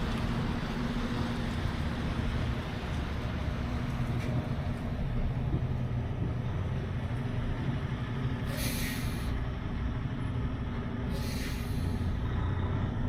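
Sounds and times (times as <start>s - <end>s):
truck diesel engine running: 0.0s - 13.0s
short air hisses: 8.5s - 9.4s, 11.1s - 12.1s.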